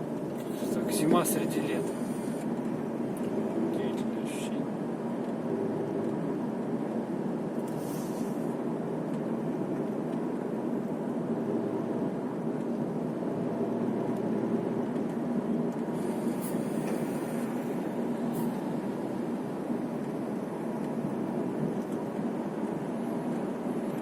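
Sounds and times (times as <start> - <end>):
car cabin engine hum: 0.0 - 24.0
brief hissing: 7.7 - 8.5, 16.0 - 17.7.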